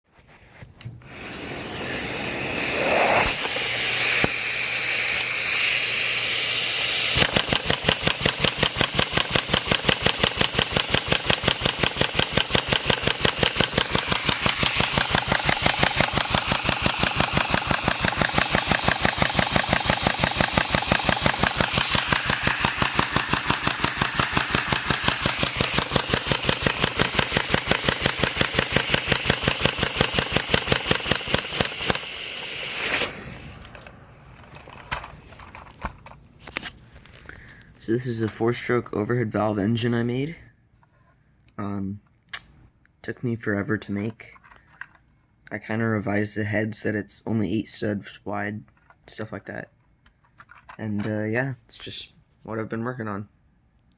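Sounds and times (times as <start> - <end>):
model engine hissing: 1.0 - 35.1
model engine running fast beat: 1.6 - 33.2
person talking: 37.8 - 40.5, 50.8 - 53.3.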